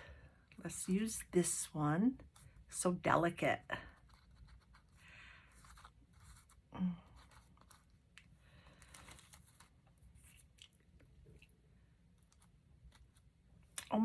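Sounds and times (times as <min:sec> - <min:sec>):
plastic package crinkling: 0:08.7 - 0:10.8.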